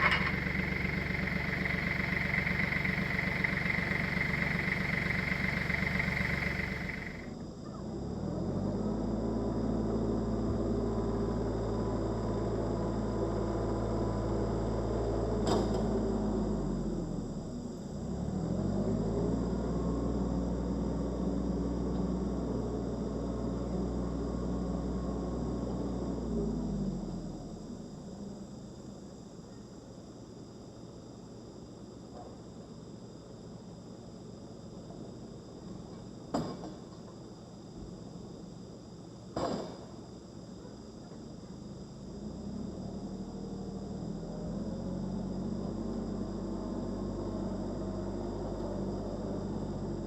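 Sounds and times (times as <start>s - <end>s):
chainsaw engine running: 0.0s - 7.3s.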